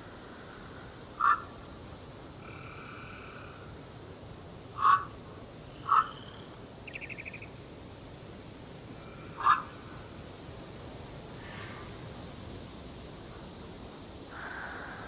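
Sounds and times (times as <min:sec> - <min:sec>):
harsh bird calls: 0:01.2 - 0:01.5, 0:04.8 - 0:07.5, 0:09.4 - 0:09.8
bird trill: 0:05.8 - 0:07.5.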